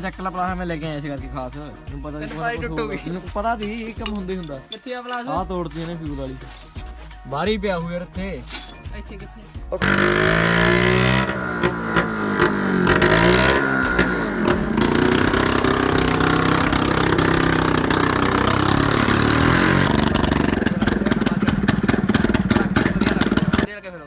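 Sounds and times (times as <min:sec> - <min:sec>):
scooter engine revving: 0:09.8 - 0:23.7.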